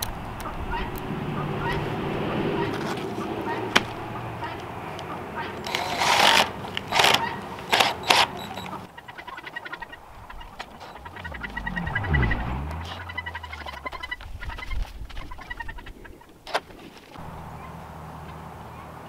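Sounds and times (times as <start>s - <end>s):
birds chirping rapidly: 0.1s - 16.4s
low rumble: 10.0s - 15.8s.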